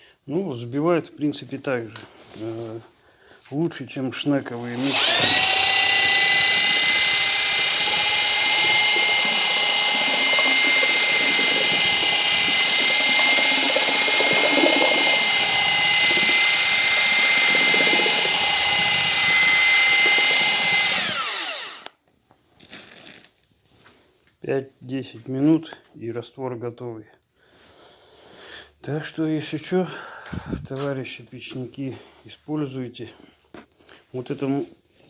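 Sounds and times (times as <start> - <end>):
mixer stirring mortar: 4.5 - 21.9
electric drill whining: 4.6 - 21.9.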